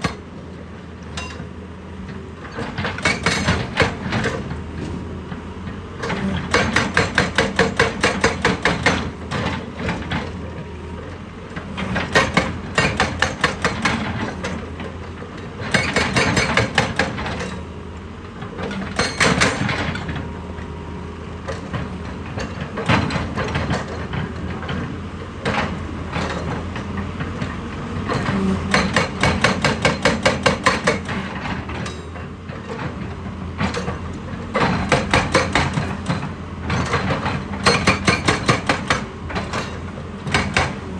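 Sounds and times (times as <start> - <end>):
diesel engine drone: 0.0 - 40.9
machine hammering rock: 2.6 - 4.4, 6.3 - 10.4, 11.8 - 14.6, 15.6 - 17.6, 18.6 - 20.0, 28.1 - 32.0, 33.6 - 40.9.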